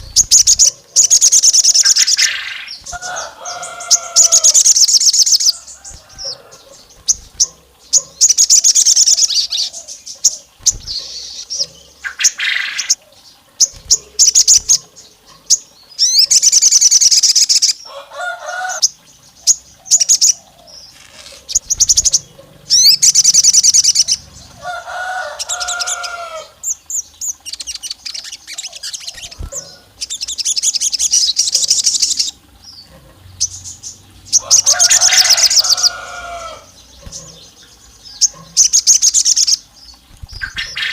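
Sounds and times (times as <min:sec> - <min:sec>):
songbird chirping trills: 0:00.0 - 0:40.9.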